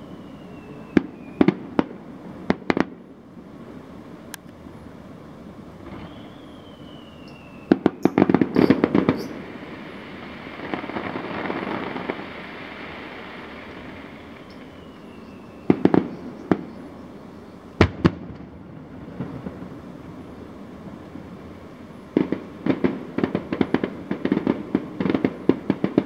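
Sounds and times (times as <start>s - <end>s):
falling firework whistle: 0.0s - 2.9s, 5.8s - 20.3s
fireworks bangs: 0.0s - 3.1s, 5.8s - 26.0s
fireworks hiss: 0.0s - 4.3s, 5.1s - 26.0s.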